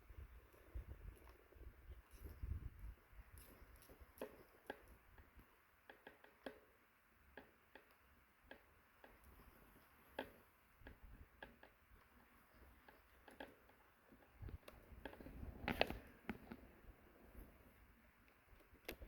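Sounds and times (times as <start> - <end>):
quiet hiss: 0.0 - 19.0
sharp clicks and crackles: 3.4 - 16.7, 18.2 - 19.0.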